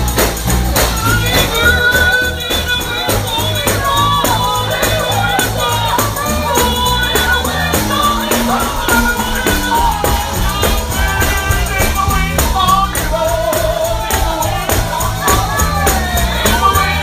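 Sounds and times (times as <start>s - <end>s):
band playing bass and beat: 0.0s - 17.0s
person singing gospel: 0.0s - 17.0s
tambourine shaking: 0.0s - 17.0s.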